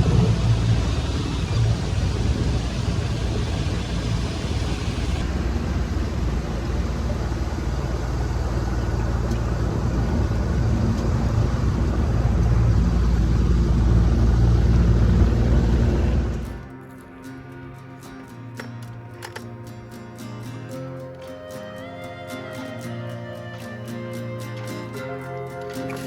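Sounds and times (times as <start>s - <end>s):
wind and water rushing: 0.0s - 16.3s
boat motor rumbling: 0.0s - 16.8s.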